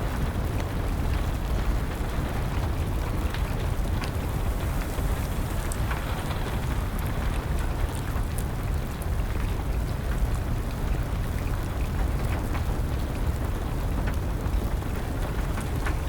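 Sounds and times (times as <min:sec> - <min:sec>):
wood fire crackling: 0:01.9 - 0:09.6
rain hiss: 0:03.9 - 0:08.3.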